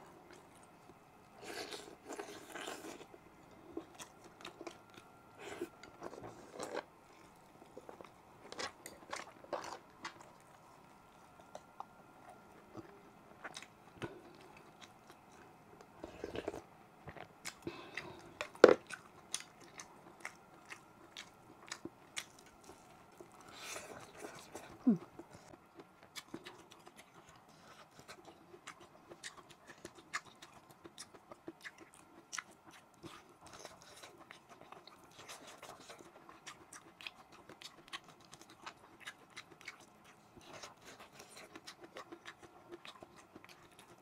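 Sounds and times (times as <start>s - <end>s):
person chewing with lip smacks: 16.1s - 44.0s.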